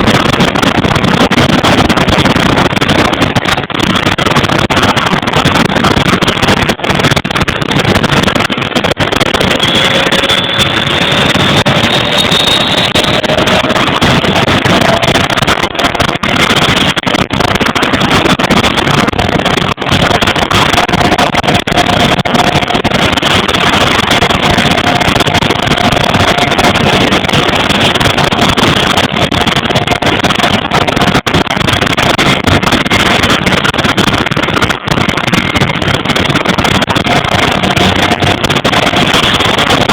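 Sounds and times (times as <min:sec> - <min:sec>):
turboprop engines running: 0:00.0 - 0:39.9
rising engine whine: 0:07.9 - 0:16.9.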